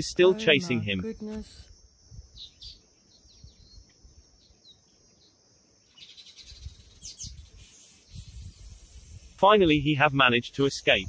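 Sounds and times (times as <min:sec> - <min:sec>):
small birds chirping: 0:00.0 - 0:09.8
high hiss: 0:07.0 - 0:11.0.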